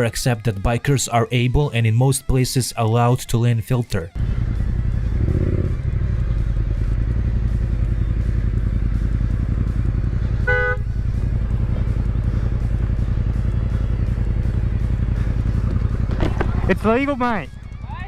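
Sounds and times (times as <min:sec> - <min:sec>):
motorcycle engine running: 0:04.1 - 0:18.0
car horn toot: 0:10.3 - 0:11.3.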